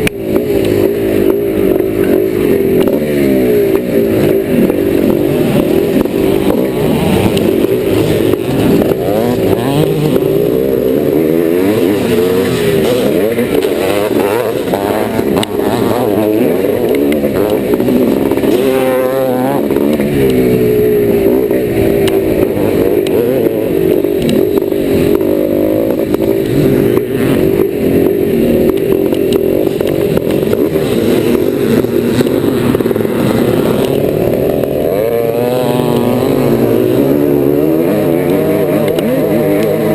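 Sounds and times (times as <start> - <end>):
two-stroke motorcycle engine revving: 0.0 - 39.9.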